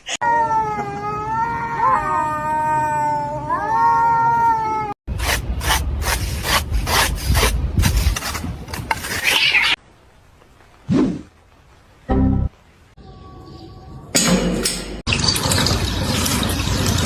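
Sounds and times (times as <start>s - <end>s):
rasping scuffling strokes: 5.1s - 9.8s.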